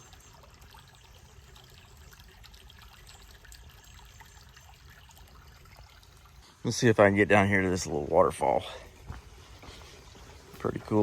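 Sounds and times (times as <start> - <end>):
small waterfall trickling: 0.0 - 11.0.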